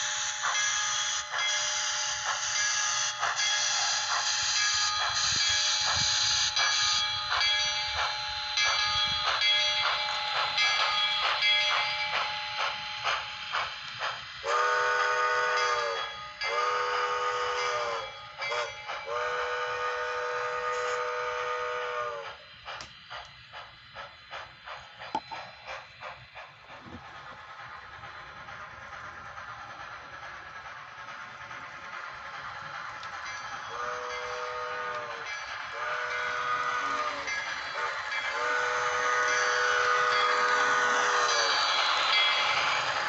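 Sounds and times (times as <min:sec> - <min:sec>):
model locomotive chuffing: 0:00.0 - 0:43.0
steam whistle blasts: 0:14.4 - 0:22.4, 0:33.7 - 0:41.8.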